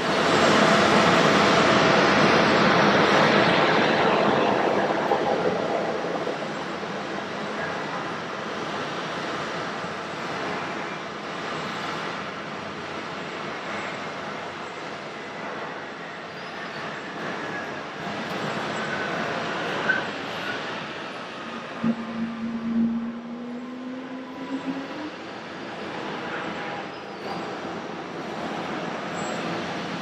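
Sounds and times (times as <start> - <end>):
distant jet engine rush: 0.0 - 8.8, 16.8 - 26.6.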